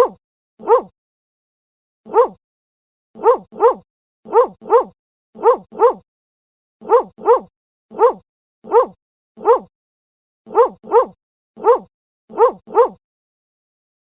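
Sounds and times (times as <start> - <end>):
dog barking: 0.0 - 0.9, 2.1 - 2.4, 3.2 - 6.0, 6.8 - 9.7, 10.5 - 13.0.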